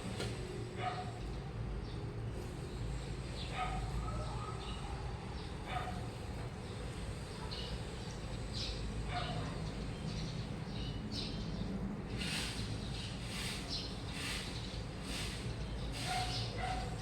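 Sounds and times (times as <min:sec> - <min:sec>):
washing machine rumbling: 0:11.6 - 0:17.0.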